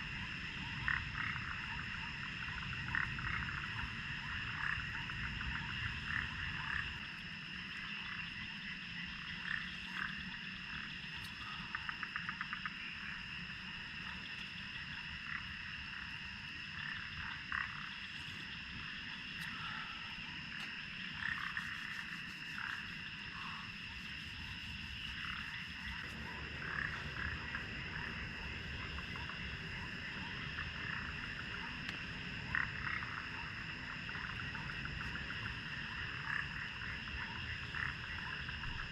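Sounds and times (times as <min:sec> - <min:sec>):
frogs croaking: 0:00.0 - 0:38.9.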